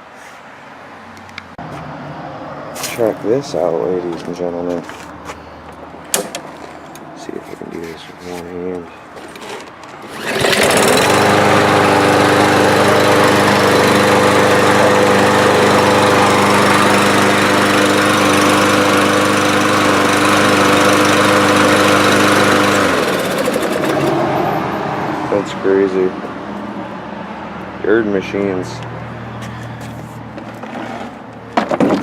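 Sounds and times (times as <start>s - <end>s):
lawn mower engine running: 9.2s - 25.5s.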